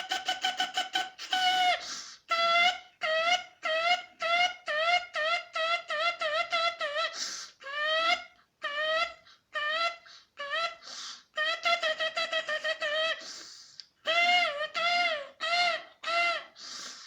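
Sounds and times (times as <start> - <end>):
breathy hiss: 16.6 - 17.0.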